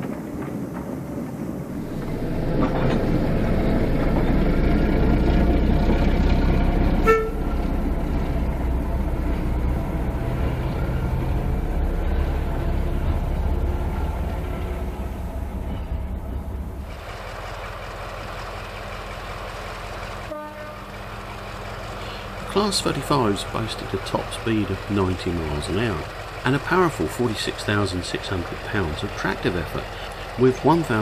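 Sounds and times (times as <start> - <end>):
diesel locomotive engine: 0.0 - 31.0
locomotive horn toot: 7.0 - 7.8, 20.3 - 21.1.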